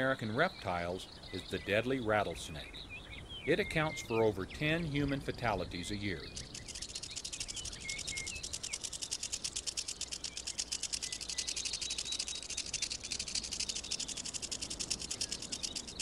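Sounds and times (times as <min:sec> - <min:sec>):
rattlesnake tail rattling: 0:04.5 - 0:16.0.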